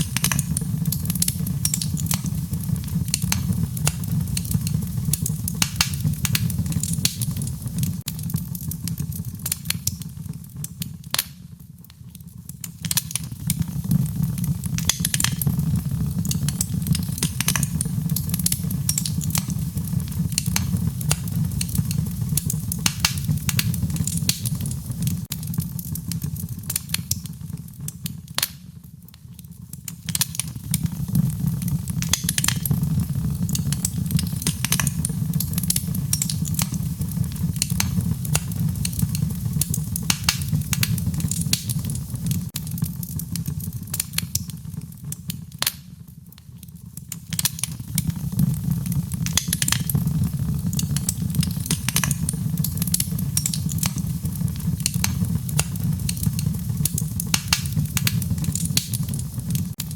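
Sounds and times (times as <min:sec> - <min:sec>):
burning logs crackling and popping: 0:00.0 - 0:59.9
low rumble of flames: 0:00.0 - 0:59.9.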